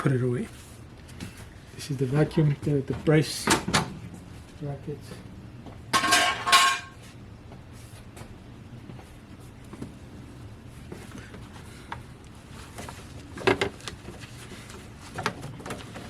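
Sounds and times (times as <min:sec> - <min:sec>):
metal part clattering and ringing: 0:06.0 - 0:06.9.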